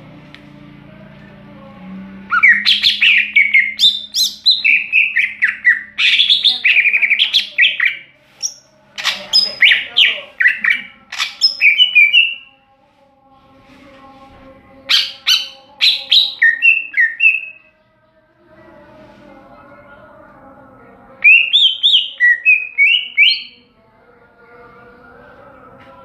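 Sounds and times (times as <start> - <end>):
bird singing whistled phrases: 2.3 - 12.4, 14.9 - 17.6, 21.2 - 23.5.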